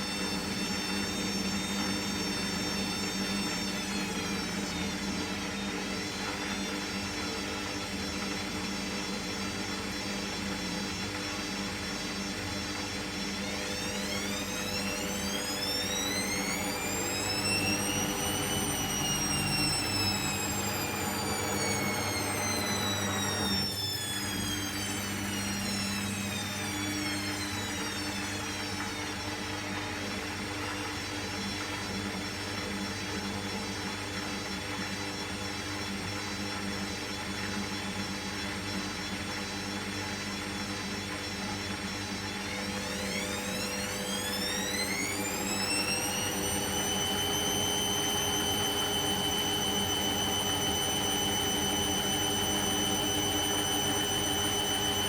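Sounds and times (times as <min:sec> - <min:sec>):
washing machine motor whine: 0:00.0 - 0:55.0
steady hum: 0:13.6 - 0:28.6.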